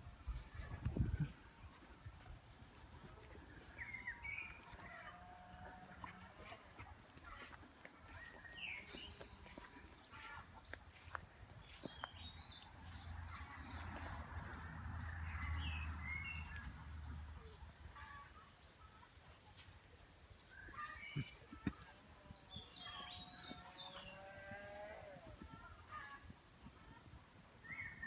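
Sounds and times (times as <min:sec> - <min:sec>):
small birds chirping: 0:07.2 - 0:13.8, 0:19.6 - 0:26.2.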